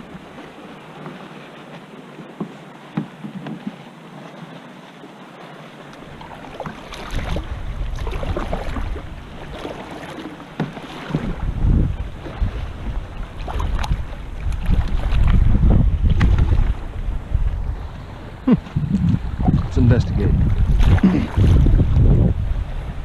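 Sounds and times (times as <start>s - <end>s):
water splashing against kayak: 0.0s - 23.0s
wind buffeting microphone: 6.9s - 9.8s, 11.0s - 23.0s.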